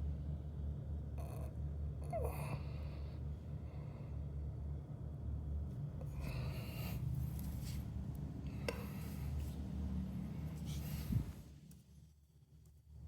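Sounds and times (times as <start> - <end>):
low steady hum: 0.0 - 13.0
soft rubbing and handling: 7.0 - 12.5.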